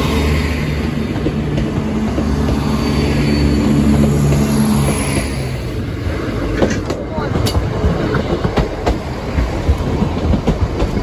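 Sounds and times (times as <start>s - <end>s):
passenger train passing: 0.0s - 11.0s
train engine droning: 0.0s - 11.0s.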